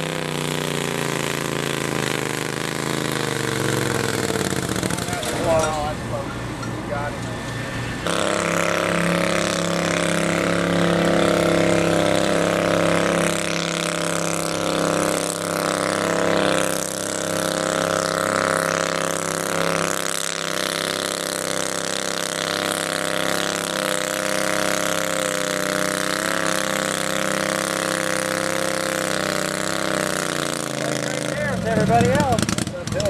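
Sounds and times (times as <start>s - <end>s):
garden tractor engine running: 0.0s - 33.0s.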